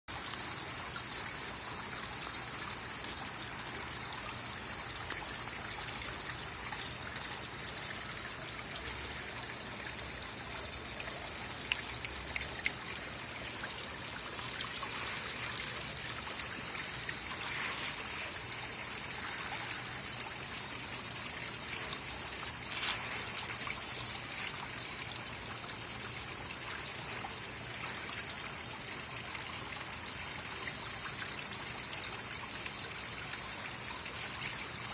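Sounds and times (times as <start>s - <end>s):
water trickling: 0.1s - 34.9s
faint ticks: 11.5s - 13.0s.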